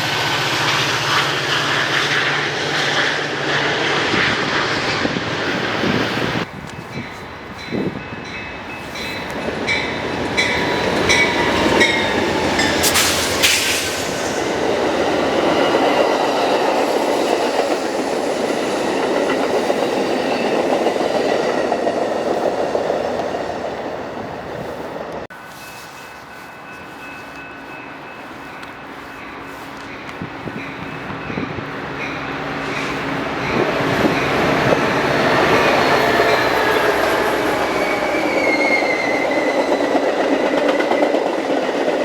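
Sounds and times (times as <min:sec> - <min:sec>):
train cars rumbling: 0:00.0 - 0:42.0
train wheels clicking over rail joints: 0:08.7 - 0:23.4, 0:32.0 - 0:42.0.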